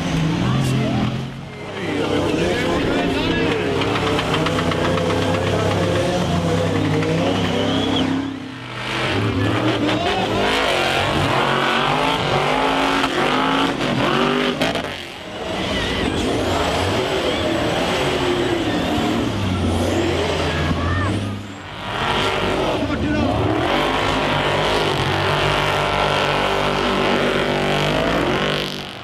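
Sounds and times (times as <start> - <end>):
truck engine revving hard: 0.0 - 29.0.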